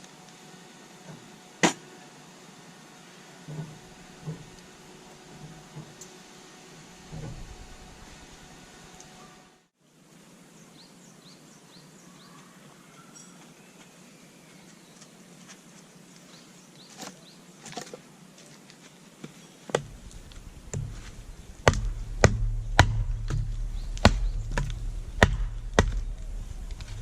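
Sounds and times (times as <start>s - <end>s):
low rumble: 7.0s - 8.9s, 19.8s - 27.0s
firewood being chopped: 19.7s - 27.0s.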